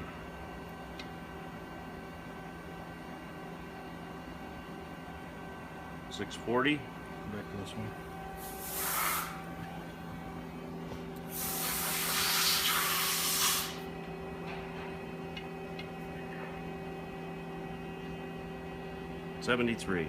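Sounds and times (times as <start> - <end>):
electrical hum: 0.0 - 20.0
hissing bursts: 8.4 - 9.4, 11.3 - 13.8.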